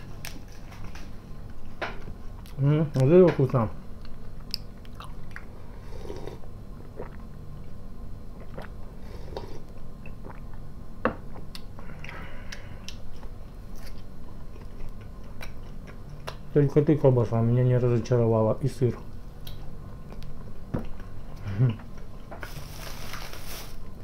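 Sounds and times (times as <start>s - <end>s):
low steady hum: 0.0s - 24.0s
chewing and mouth noises: 4.0s - 5.5s, 6.3s - 7.7s, 8.4s - 8.8s, 9.4s - 10.6s, 11.3s - 16.5s.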